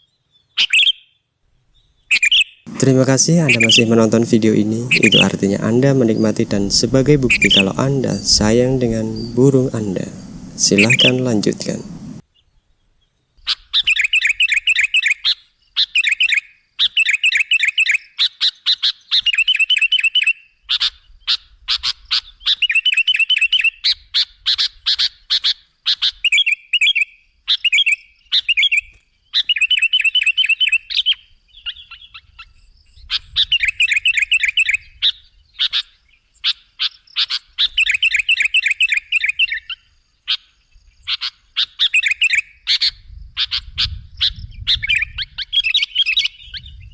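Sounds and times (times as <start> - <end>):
bird chattering song: 2.7 - 12.2.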